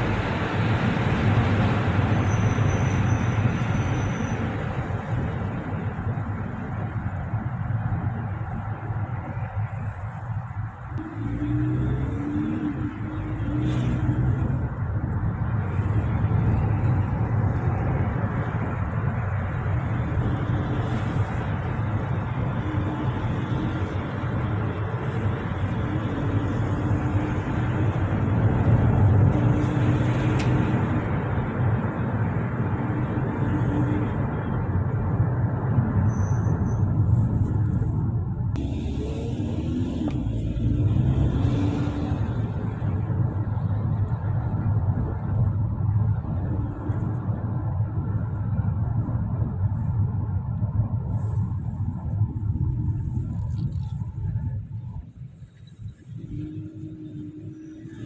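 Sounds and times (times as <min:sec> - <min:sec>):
city traffic noise: 0:00.0 - 0:58.0
motor vehicle rumbling: 0:00.0 - 0:58.0.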